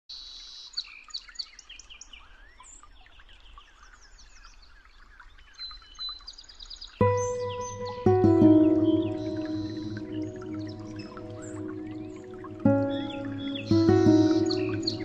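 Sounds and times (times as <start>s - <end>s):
songbirds chirping and singing: 6.9s - 15.0s.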